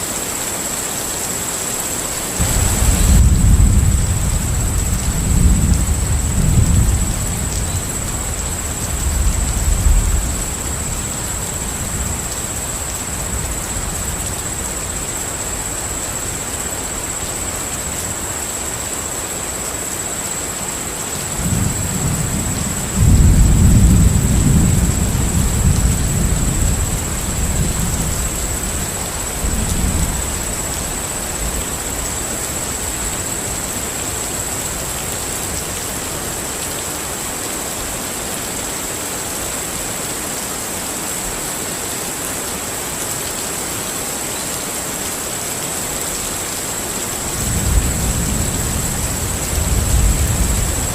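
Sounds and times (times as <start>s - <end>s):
steady rain: 0.0s - 50.9s
rolling thunder: 2.4s - 13.6s, 21.4s - 31.5s, 47.3s - 50.9s.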